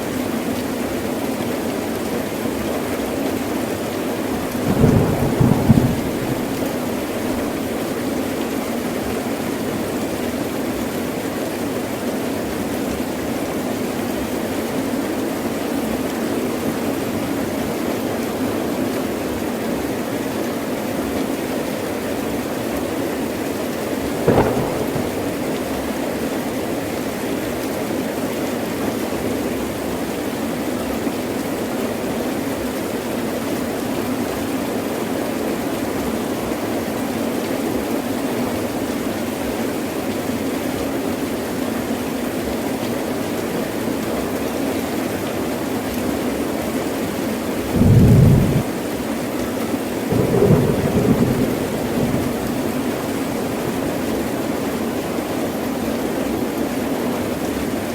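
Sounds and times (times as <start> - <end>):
heavy rain: 0.0 - 57.9
thunder clap: 4.4 - 7.6, 24.1 - 26.2, 47.8 - 48.8, 50.1 - 54.1.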